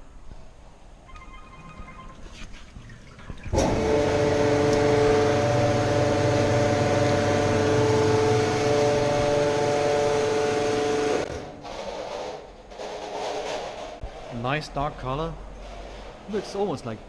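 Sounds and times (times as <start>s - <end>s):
grape press machine hum: 3.5s - 11.5s.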